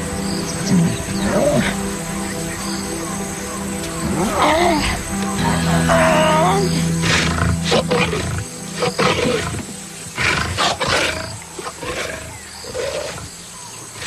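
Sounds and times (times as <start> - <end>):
background music: 0.0 - 14.0
lions growling: 5.6 - 13.3.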